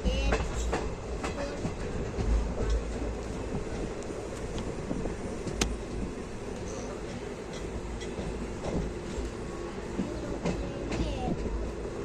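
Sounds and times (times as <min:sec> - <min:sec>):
wheels clicking over rail joints: 0:00.0 - 0:11.7
train rumbling: 0:00.0 - 0:12.0.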